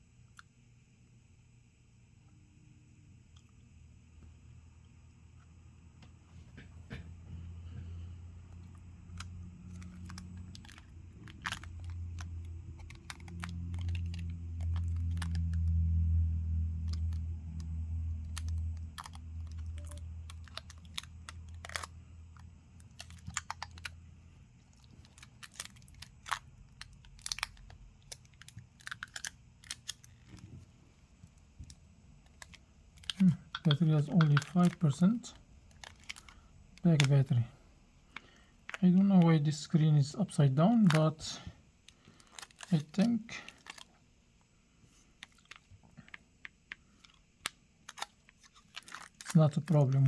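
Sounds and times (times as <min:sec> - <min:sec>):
low hum: 0:02.7 - 0:41.6
tools and phone clicking: 0:08.5 - 0:15.8, 0:16.8 - 0:24.0.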